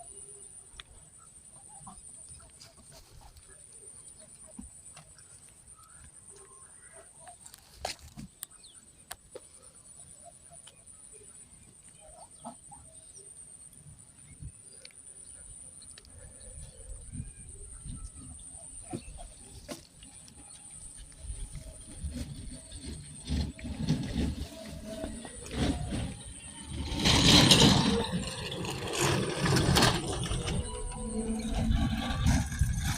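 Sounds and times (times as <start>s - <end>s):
high-pitched whine: 16.6s - 32.9s.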